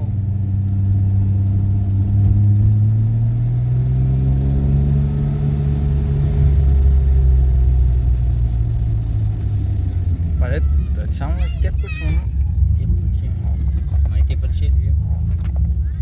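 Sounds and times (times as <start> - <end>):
car engine pulling: 0.0 - 16.0.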